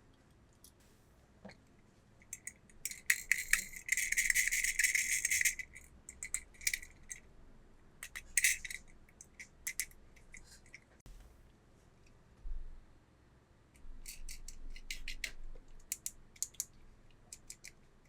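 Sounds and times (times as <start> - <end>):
packaging clicks and rattles: 2.9 - 7.0.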